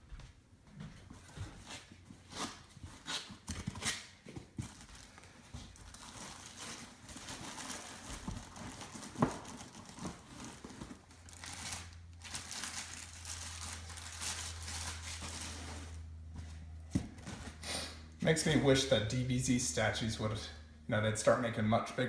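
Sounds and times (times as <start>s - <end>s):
packing wrap crinkling: 3.6s - 16.2s.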